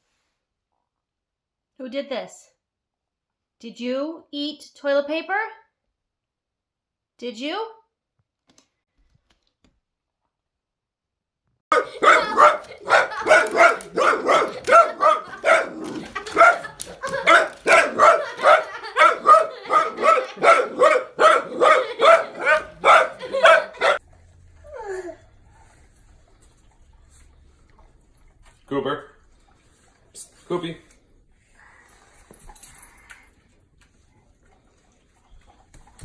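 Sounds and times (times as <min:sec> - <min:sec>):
dog barking: 0:11.7 - 0:24.0
dog yelping: 0:11.7 - 0:24.0.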